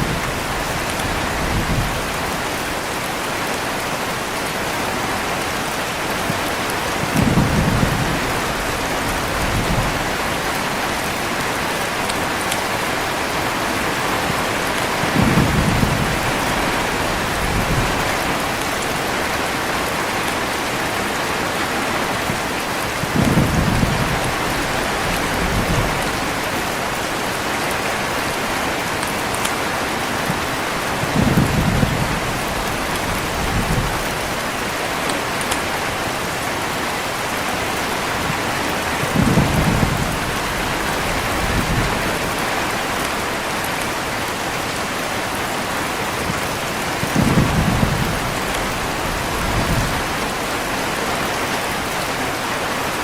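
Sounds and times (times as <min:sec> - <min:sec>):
heavy rain: 0:00.0 - 0:53.0
rolling thunder: 0:07.0 - 0:11.4, 0:14.2 - 0:18.6, 0:23.0 - 0:26.6, 0:31.0 - 0:34.4, 0:39.0 - 0:42.4, 0:46.2 - 0:50.3.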